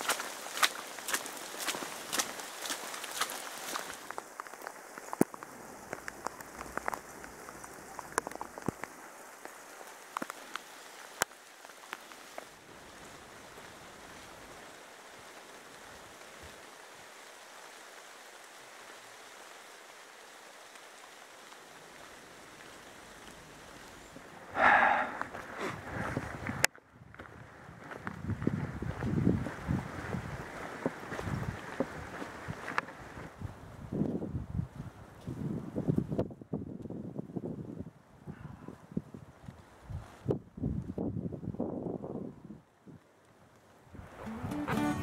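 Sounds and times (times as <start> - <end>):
heavy rain hissing: 0.0 - 26.6
raindrops ticking close by: 0.0 - 33.4.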